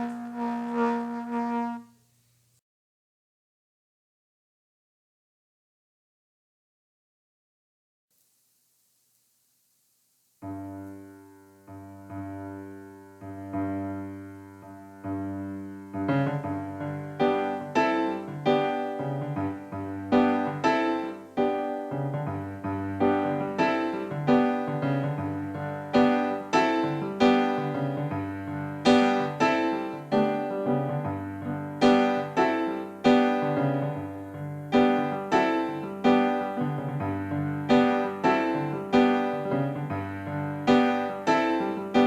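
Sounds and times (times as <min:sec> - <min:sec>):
piano chords: 0:00.0 - 0:02.0, 0:10.4 - 0:42.0.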